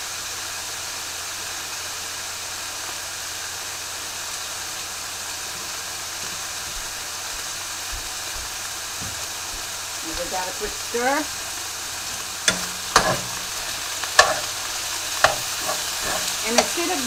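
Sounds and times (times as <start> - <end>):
chicken sizzling in a pan: 0.0 - 17.0.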